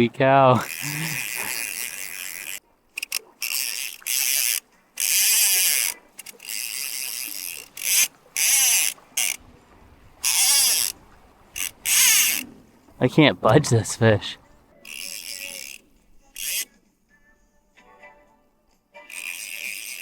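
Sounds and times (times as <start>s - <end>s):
fly reel drag ratcheting: 0.5s - 9.4s, 10.2s - 12.8s, 14.7s - 16.8s, 19.0s - 20.0s.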